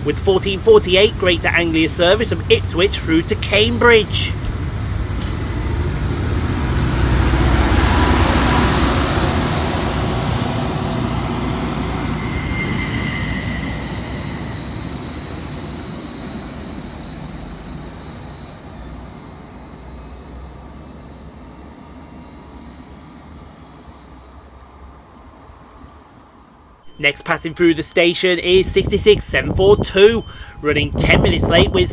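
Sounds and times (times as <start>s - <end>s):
train engine rumble: 0.0s - 17.8s, 26.9s - 31.9s.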